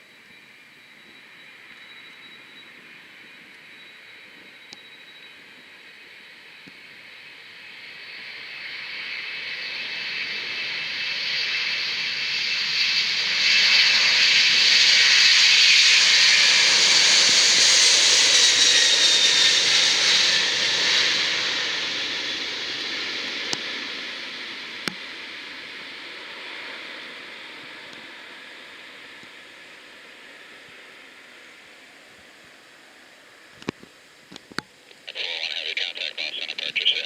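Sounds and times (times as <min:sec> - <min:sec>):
jet aircraft passing: 0:07.1 - 0:32.1, 0:34.9 - 0:37.0.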